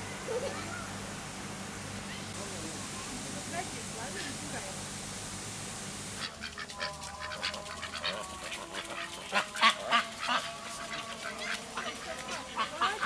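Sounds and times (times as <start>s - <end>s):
steady hiss: 0.0s - 13.0s
flock of birds calling: 6.2s - 13.0s.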